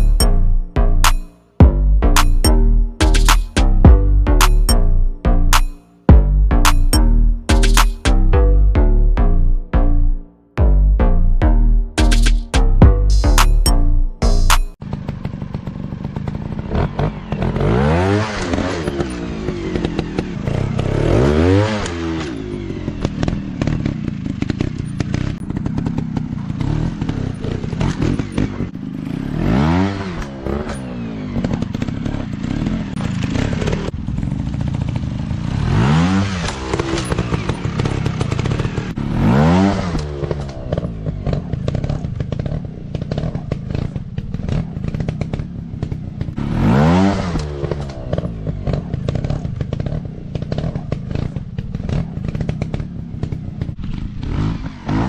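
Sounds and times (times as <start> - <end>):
dirt bike engines revving: 14.2 - 55.0.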